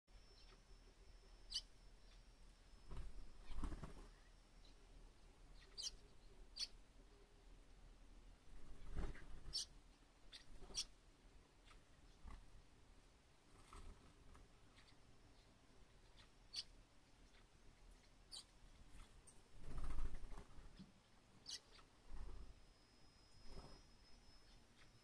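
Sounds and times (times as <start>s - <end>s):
high-pitched bird chirps: 0.2s - 0.6s, 1.4s - 2.3s, 5.5s - 6.8s, 8.8s - 11.0s, 14.8s - 18.5s, 21.4s - 21.9s.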